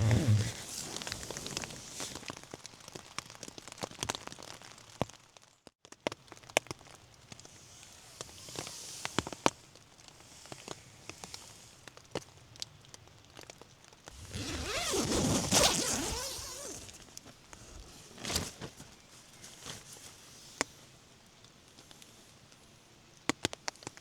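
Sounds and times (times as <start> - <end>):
zipper being pulled: 0.0 - 2.2, 7.7 - 9.5, 14.2 - 18.6
small clicks and rustles: 0.0 - 24.0.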